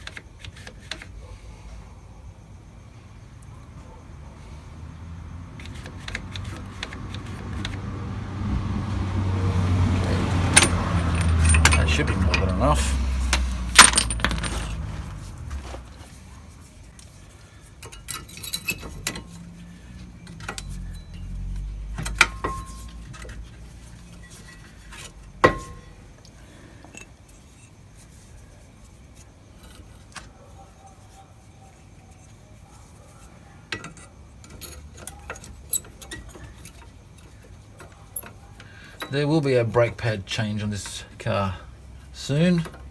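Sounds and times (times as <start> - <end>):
metal tools clinking: 10.4 - 13.0, 13.7 - 15.0, 17.8 - 26.0, 26.8 - 27.8, 33.7 - 41.0
sharp ringing metal clinks: 10.5 - 12.8, 20.5 - 22.9.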